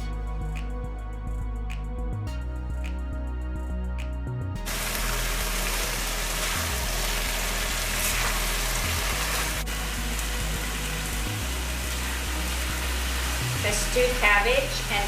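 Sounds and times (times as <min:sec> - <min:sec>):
food sizzling in a wok: 0:04.6 - 0:15.0.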